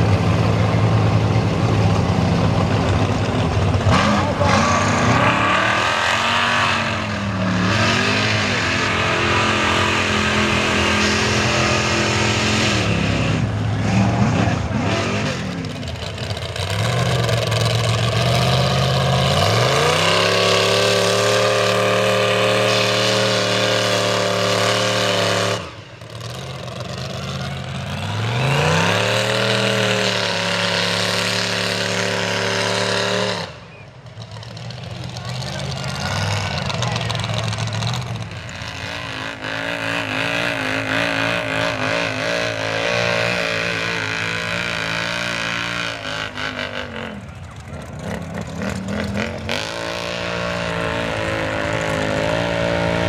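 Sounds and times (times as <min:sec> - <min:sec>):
truck engine revving: 0:00.0 - 0:53.0.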